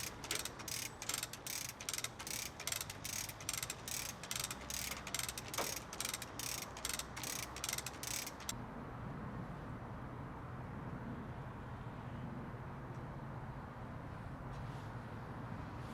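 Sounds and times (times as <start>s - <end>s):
winch ratchet clicking: 0.0s - 8.5s.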